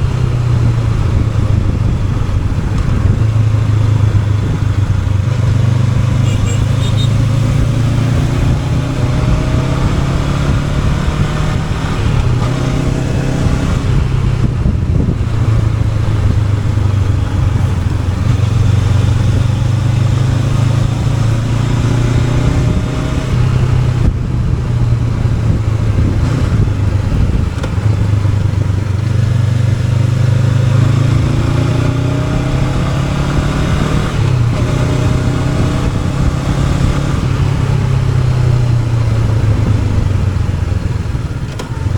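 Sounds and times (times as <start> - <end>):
motorcycle engine running: 0.0 - 41.9
wind rushing: 0.0 - 41.9.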